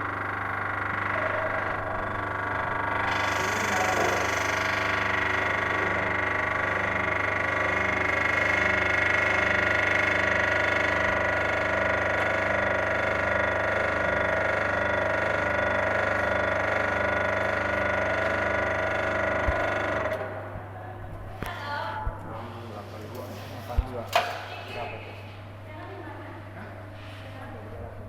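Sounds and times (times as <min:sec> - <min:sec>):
block making machine humming: 0:00.0 - 0:20.8.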